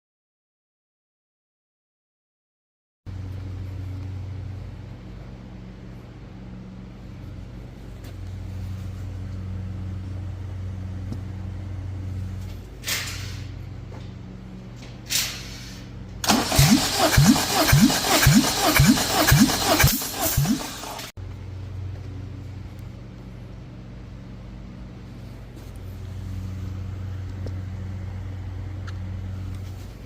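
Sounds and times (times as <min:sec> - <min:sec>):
low steady hum: 0:03.1 - 0:12.8, 0:20.7 - 0:30.0
engine cranking: 0:16.2 - 0:21.1.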